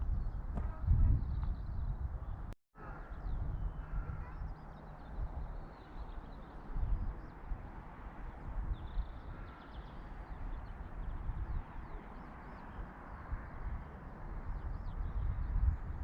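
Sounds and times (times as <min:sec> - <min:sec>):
small birds chirping: 0:00.1 - 0:07.8, 0:08.6 - 0:16.0.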